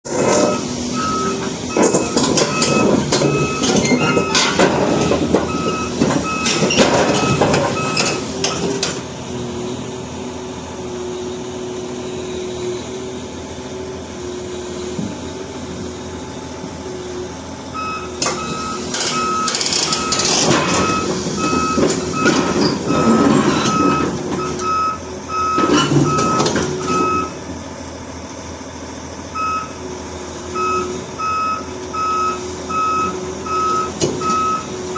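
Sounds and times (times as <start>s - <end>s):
engine running: 0.0s - 34.9s
reversing alarm beeping: 0.2s - 8.7s, 17.7s - 27.4s, 29.3s - 29.8s, 30.4s - 34.9s
loud clattering: 1.7s - 9.0s.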